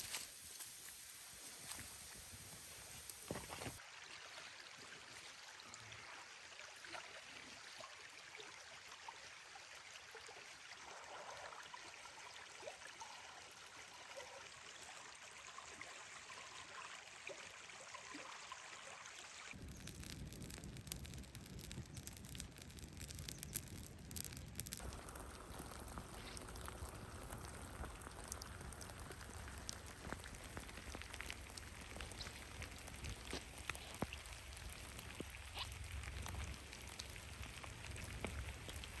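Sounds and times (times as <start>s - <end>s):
rain falling: 0.0s - 3.8s, 19.6s - 39.0s.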